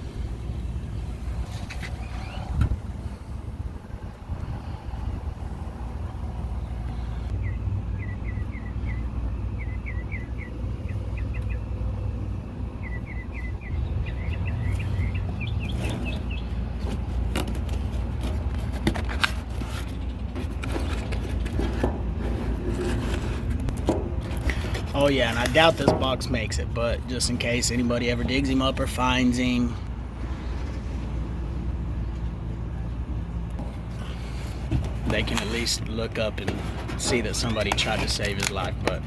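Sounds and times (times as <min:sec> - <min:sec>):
steady low rumble: 0:00.0 - 0:39.0
scrapes and knocks: 0:16.8 - 0:26.4, 0:33.6 - 0:39.0.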